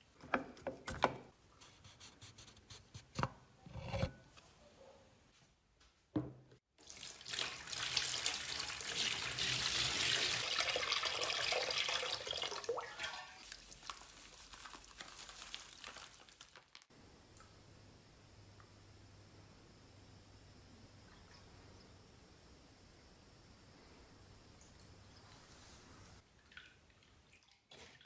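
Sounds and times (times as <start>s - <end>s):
knock: 6.2s - 6.4s
water running: 6.8s - 16.9s.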